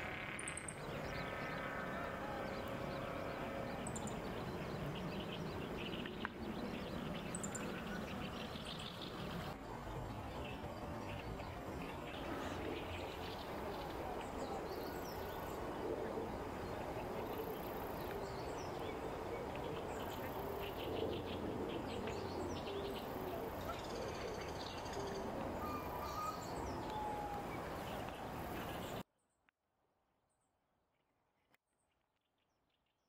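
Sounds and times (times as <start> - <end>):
open-air background hiss: 0.0 - 29.1
faint bird calls: 12.0 - 29.0.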